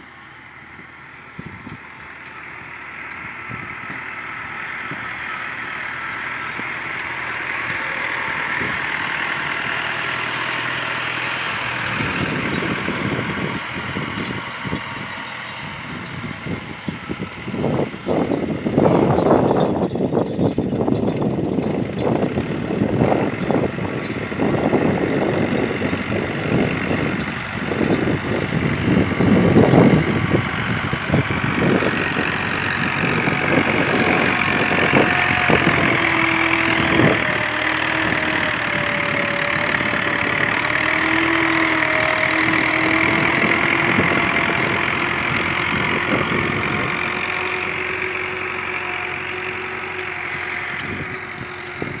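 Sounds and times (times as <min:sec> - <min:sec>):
tractor engine running: 0:00.0 - 0:52.0.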